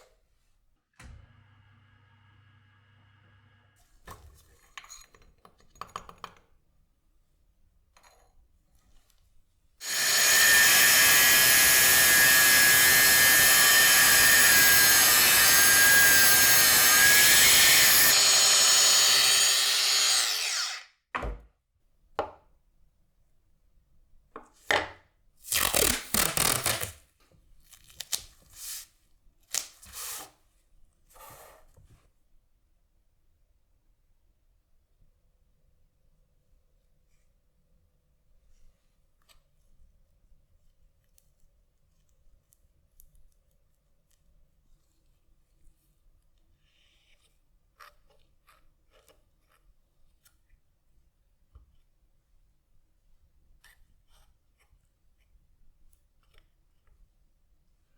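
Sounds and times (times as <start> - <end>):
power tool whining: 9.8 - 20.9.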